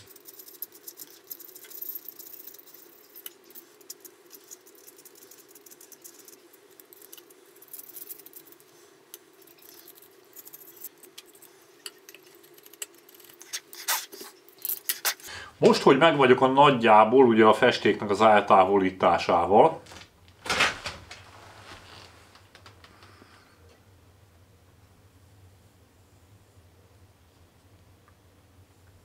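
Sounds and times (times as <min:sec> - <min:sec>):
blade scraping paint: 0:00.0 - 0:08.8, 0:09.4 - 0:15.3
steady low hum: 0:00.0 - 0:19.6.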